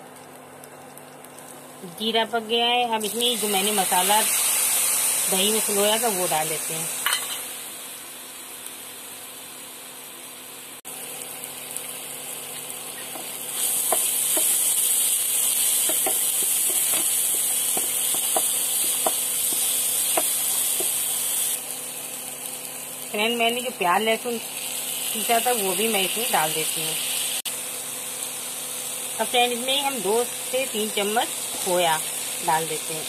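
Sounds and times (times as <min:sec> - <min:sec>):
food sizzling in oil: 0:00.2 - 0:33.0.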